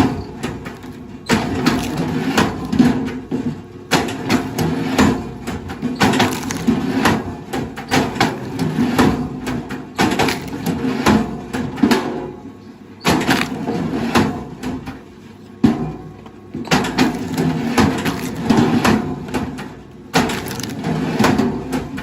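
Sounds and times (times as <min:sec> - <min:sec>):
wood cracking and splintering: 0:00.6 - 0:02.6, 0:06.0 - 0:06.9, 0:10.0 - 0:10.8, 0:16.8 - 0:19.0, 0:20.2 - 0:21.4.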